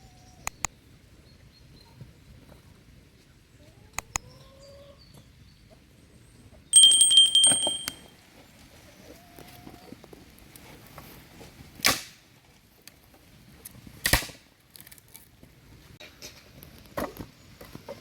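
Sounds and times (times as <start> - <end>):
loud clatter with ringing tone: 6.8 - 8.1.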